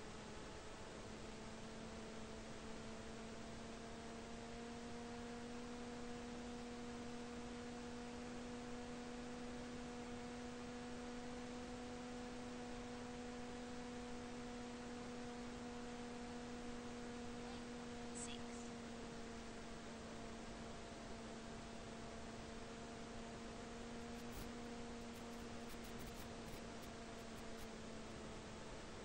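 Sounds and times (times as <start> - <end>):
electric motor and propeller humming: 8.4 - 29.0.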